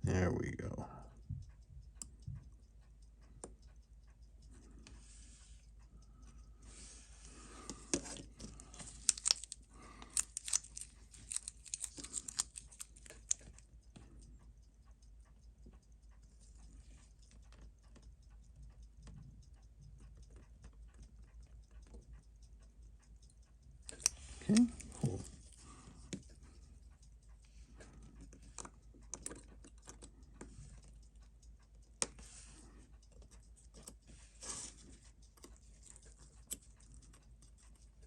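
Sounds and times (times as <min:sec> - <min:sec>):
fast faint ticking: 0:00.0 - 0:38.0
tools clicking and scraping: 0:07.7 - 0:13.6.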